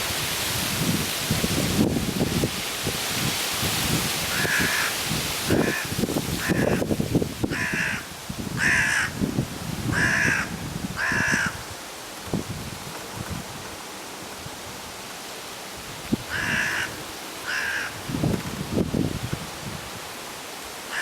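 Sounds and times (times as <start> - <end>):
wind gusts on microphone: 0.0 - 20.8
crow cawing: 4.3 - 6.8, 7.5 - 9.2, 9.9 - 11.7, 16.3 - 18.0.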